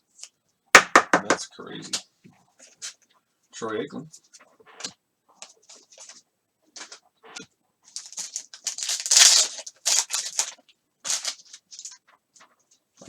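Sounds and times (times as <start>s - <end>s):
cards rustling and scraping: 4.8s - 6.2s.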